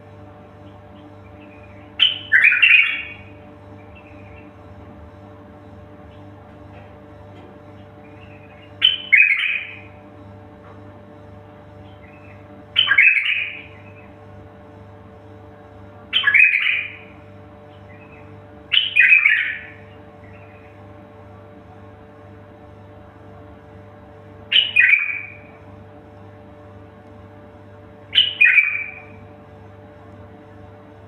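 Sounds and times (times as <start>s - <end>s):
steady low hum: 0.0s - 31.0s
bird giving harsh calls: 1.4s - 3.3s, 8.2s - 9.9s, 12.1s - 13.8s, 16.1s - 17.1s, 18.0s - 20.7s, 24.5s - 25.5s, 28.1s - 29.2s.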